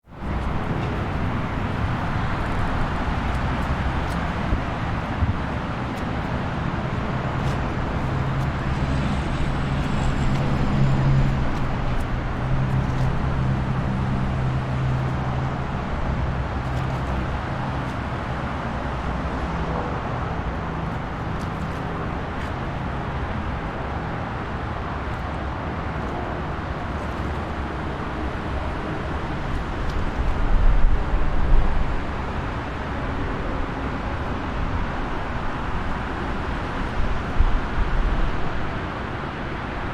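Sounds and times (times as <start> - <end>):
heavy vehicle rumble: 0.0 - 39.9
passing cars and trucks: 0.0 - 39.9
engine drone: 0.1 - 30.2.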